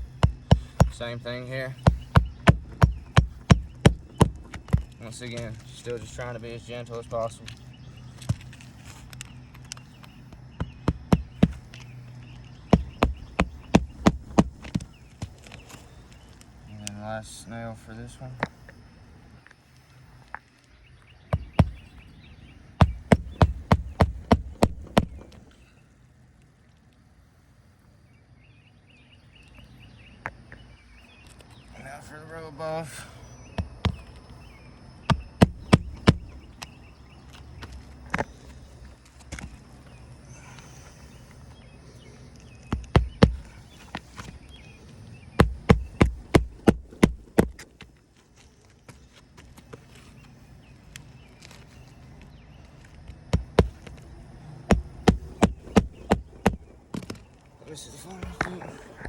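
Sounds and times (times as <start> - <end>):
hammer driving nail into shingle: 0.0 - 1.0, 1.8 - 5.5, 10.6 - 11.8, 12.7 - 15.5, 21.3 - 21.9, 22.8 - 25.4, 35.1 - 36.5, 42.7 - 44.3, 45.4 - 47.8, 53.3 - 54.0, 54.7 - 57.2.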